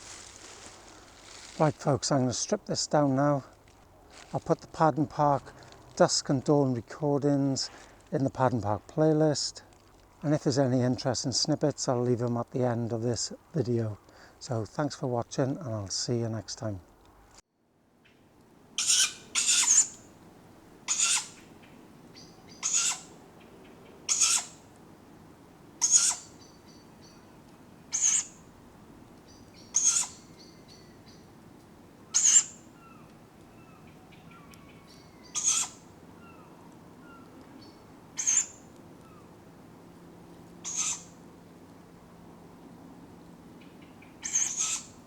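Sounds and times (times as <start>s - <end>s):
owlets hissing screech: 18.8s - 20.0s, 20.9s - 21.3s, 24.1s - 24.5s, 35.4s - 35.8s
faint songbird calls: 20.9s - 24.6s, 25.8s - 28.5s, 29.2s - 31.3s, 32.0s - 39.3s, 40.6s - 41.2s, 43.5s - 45.0s.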